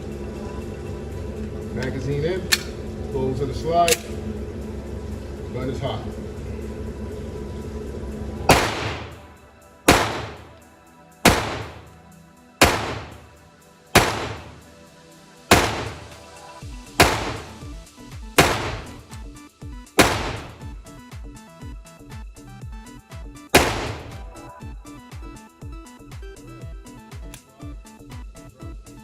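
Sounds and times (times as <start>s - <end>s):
pistol shots echoing: 8.5s - 9.3s, 9.9s - 10.6s, 11.2s - 12.0s, 12.6s - 13.4s, 14.0s - 14.7s, 15.5s - 16.3s, 17.0s - 17.7s, 18.4s - 19.1s, 20.0s - 20.7s, 23.6s - 24.3s.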